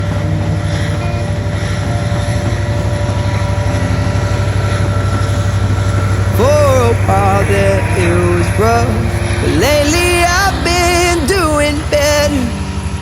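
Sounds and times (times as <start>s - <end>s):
propeller aircraft engine droning: 0.0s - 13.0s
man singing: 6.3s - 13.0s.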